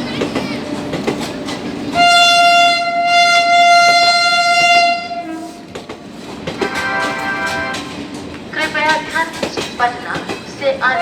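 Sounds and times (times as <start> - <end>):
train running through: 0.0 - 11.0
locomotive horn blast: 2.0 - 5.6, 6.6 - 7.9.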